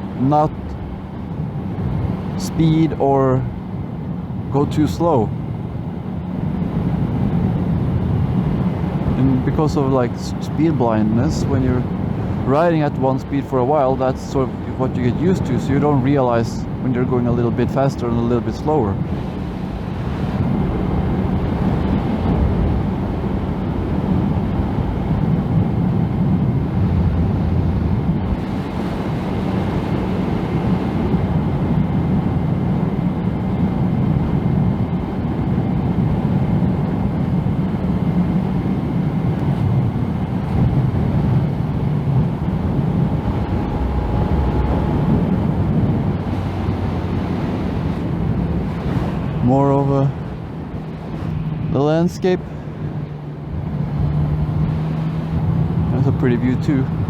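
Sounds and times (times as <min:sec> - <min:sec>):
road noise: 0:00.0 - 0:57.0
wind rushing over helmet: 0:19.0 - 0:56.0
motorcycle engine cruising: 0:34.1 - 0:57.0.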